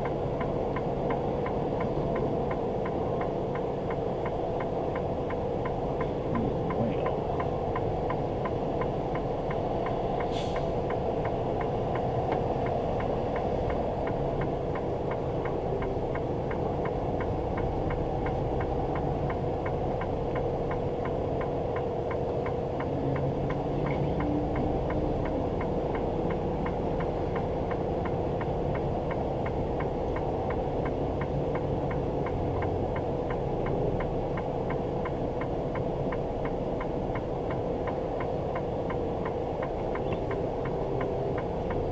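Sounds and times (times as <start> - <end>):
faint regular ticking: 0.0 - 41.9
truck engine and road noise: 0.0 - 41.9.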